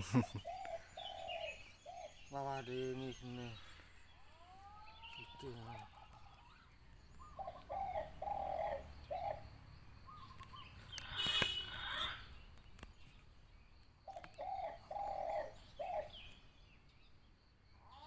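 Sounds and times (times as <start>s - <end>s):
bird cooing: 0.1s - 12.3s, 14.0s - 16.4s.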